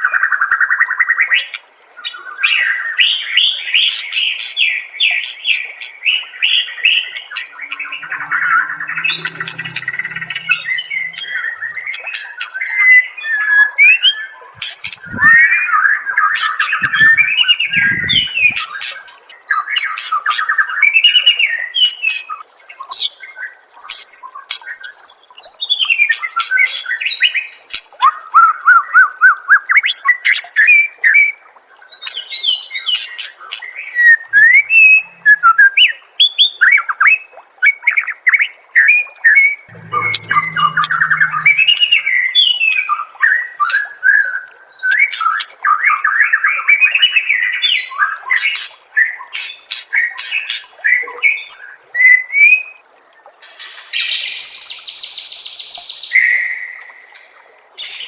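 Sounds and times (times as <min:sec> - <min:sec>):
songbird singing whistles and trills: 0:54.0 - 0:57.0.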